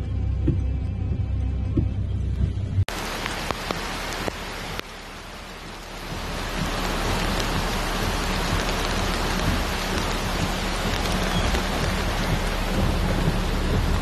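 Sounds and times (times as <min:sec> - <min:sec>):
low rumble: 0:00.0 - 0:14.0
heavy rain pouring: 0:02.9 - 0:14.0.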